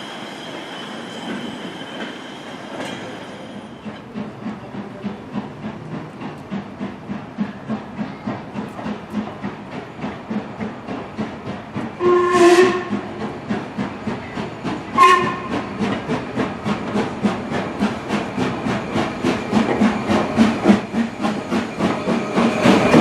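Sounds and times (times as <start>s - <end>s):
steam locomotive exhaust beats: 3.6s - 23.0s
steam locomotive whistle: 12.0s - 13.1s, 14.9s - 15.8s.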